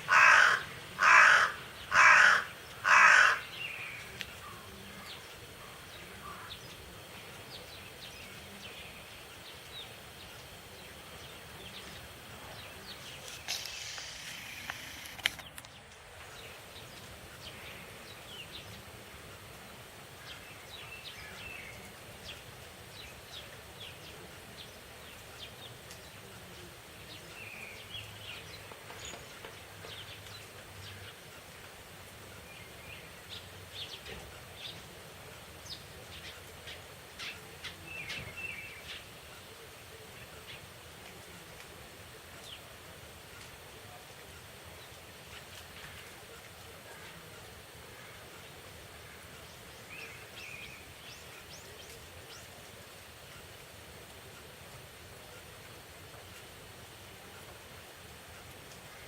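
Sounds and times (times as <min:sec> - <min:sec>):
crow cawing: 0:00.0 - 0:03.5.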